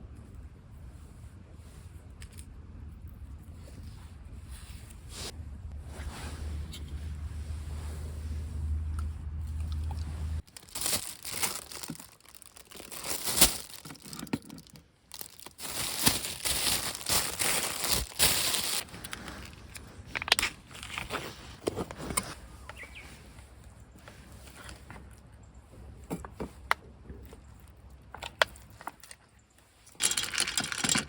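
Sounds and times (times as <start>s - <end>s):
low steady rumble: 0.0s - 28.8s
crinkly rustling: 9.8s - 23.0s
sharp crackles: 10.4s - 14.1s.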